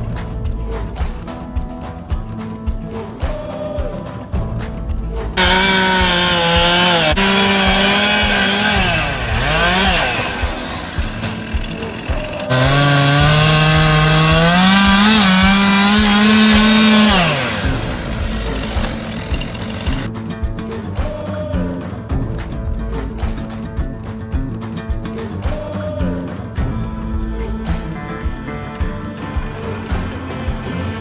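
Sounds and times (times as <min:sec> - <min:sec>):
chainsaw running at high revs: 0:05.4 - 0:20.1.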